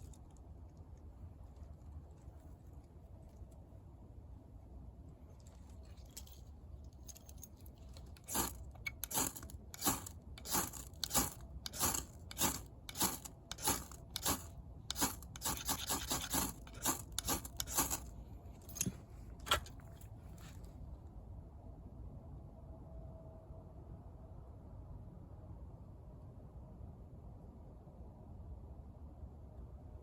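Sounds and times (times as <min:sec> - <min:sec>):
short scraping strokes: 0:08.2 - 0:19.8.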